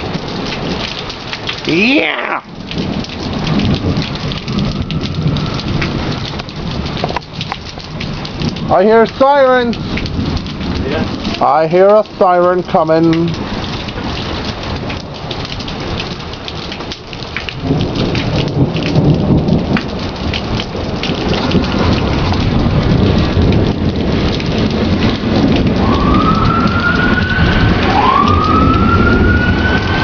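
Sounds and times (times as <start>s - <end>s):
heavy rain falling: 0.0s - 30.0s
rolling thunder rumble: 2.4s - 30.0s
emergency vehicle siren wailing: 3.1s - 7.0s, 24.8s - 30.0s.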